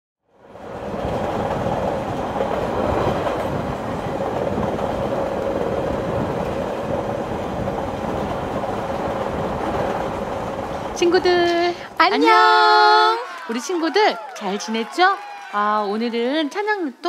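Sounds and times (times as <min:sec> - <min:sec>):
train rumbling and rattling: 0:00.3 - 0:13.2.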